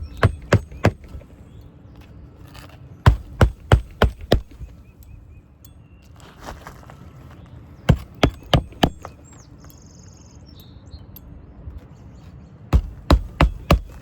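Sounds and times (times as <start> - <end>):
hammer striking roofing nails: 0.0 - 1.3, 3.1 - 4.8, 7.9 - 9.2, 12.8 - 14.0.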